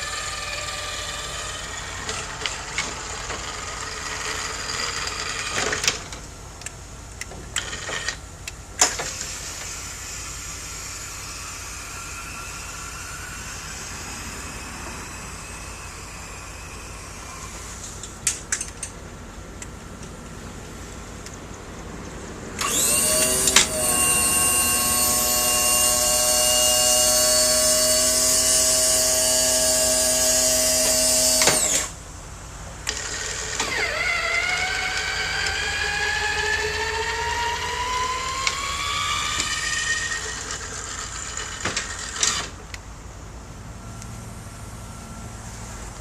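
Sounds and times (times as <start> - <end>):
hydraulic pump motor whining: 8.8 - 18.2, 22.6 - 32.0, 32.8 - 42.6.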